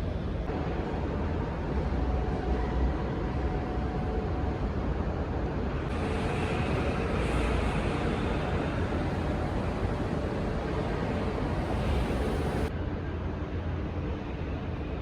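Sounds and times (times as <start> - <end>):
road traffic rumble: 5.9 - 12.7.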